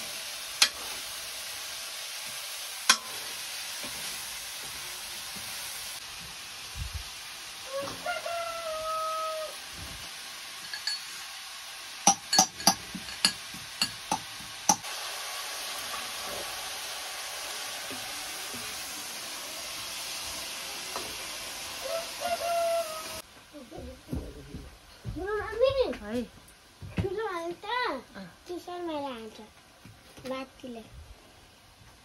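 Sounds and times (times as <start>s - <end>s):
vegetables sizzling in a wok: 0.0s - 32.0s
rooster crowing: 7.6s - 9.6s, 21.8s - 23.2s.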